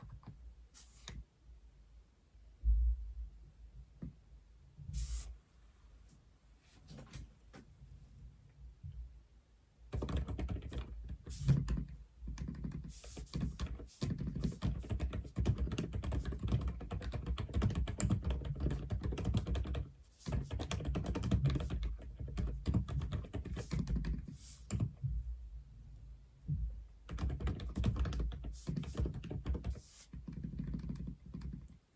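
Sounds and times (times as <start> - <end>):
mechanical keyboard typing: 10.0 - 24.9, 27.1 - 31.8.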